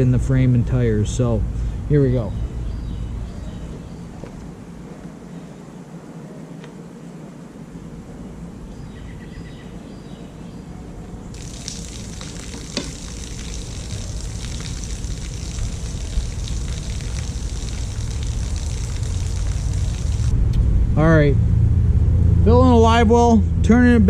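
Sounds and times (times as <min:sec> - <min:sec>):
water rushing and splashing out: 0:11.4 - 0:20.3
low rumble: 0:13.6 - 0:24.0.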